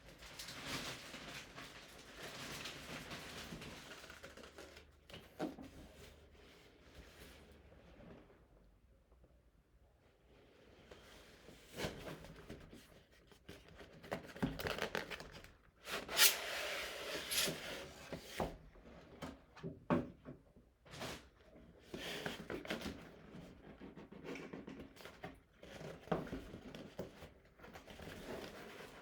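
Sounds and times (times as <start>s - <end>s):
packaging rustling and tearing: 0.1s - 4.9s, 14.0s - 16.4s.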